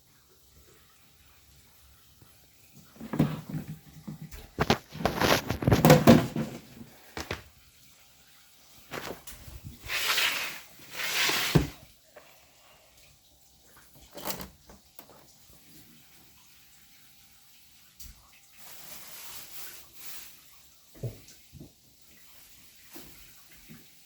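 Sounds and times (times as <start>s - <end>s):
washing machine knocks and clatter: 2.9s - 7.5s.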